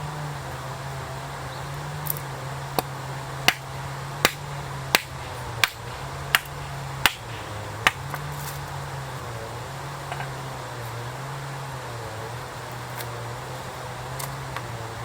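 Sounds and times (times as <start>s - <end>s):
steady low hum: 0.0s - 15.0s
sharp evenly spaced knocks: 2.0s - 9.3s, 10.0s - 11.0s.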